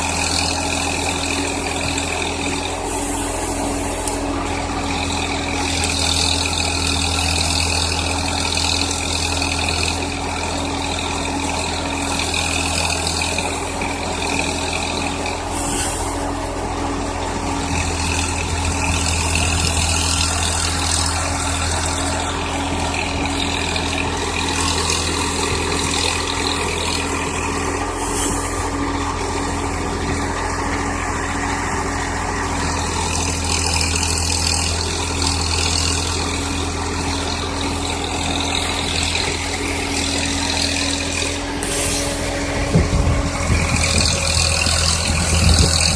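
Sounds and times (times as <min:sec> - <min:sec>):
hydraulic whine: 0:00.0 - 0:45.9
tractor diesel engine running: 0:00.0 - 0:45.9
brief hisses: 0:41.6 - 0:42.2.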